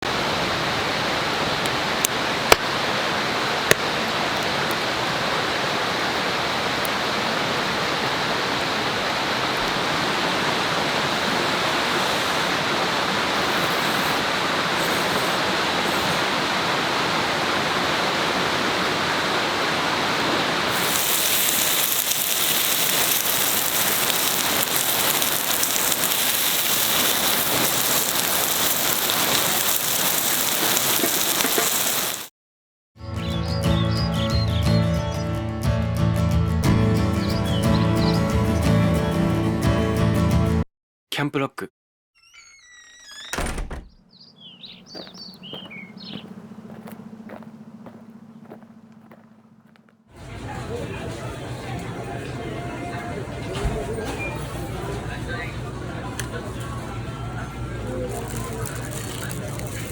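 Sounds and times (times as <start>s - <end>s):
rushing water: 0.0s - 32.3s
sharp clicks: 20.8s - 32.3s.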